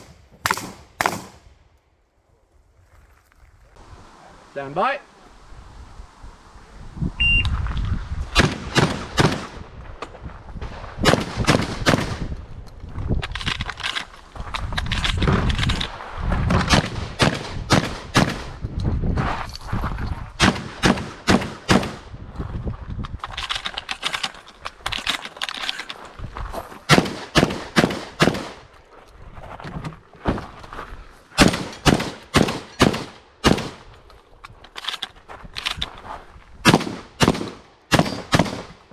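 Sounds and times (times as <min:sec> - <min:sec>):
shotgun firing: 0:00.0 - 0:01.5, 0:20.4 - 0:22.0, 0:26.9 - 0:28.6, 0:31.4 - 0:33.8, 0:36.6 - 0:38.8.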